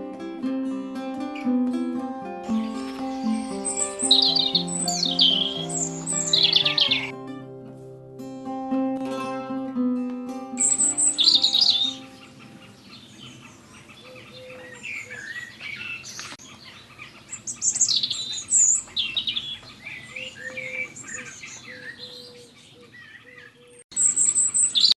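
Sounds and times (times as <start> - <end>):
small birds chirping: 2.5 - 7.1, 10.6 - 25.0.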